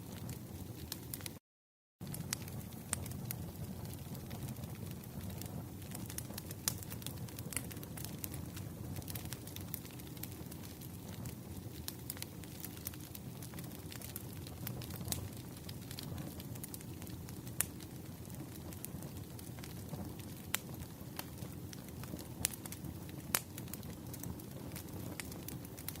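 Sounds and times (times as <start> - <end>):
wood fire popping and snapping: 0.0 - 1.4, 2.0 - 26.0.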